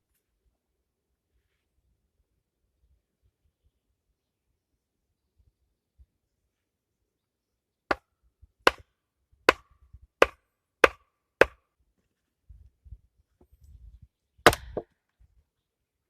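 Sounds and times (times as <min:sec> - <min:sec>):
tool striking wood: 0:08.6 - 0:08.8, 0:09.5 - 0:11.6.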